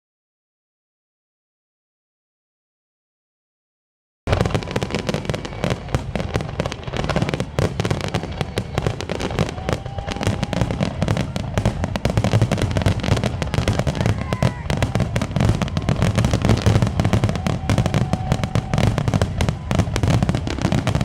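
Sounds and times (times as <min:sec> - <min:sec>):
fireworks bangs and crackles: 0:04.3 - 0:21.0.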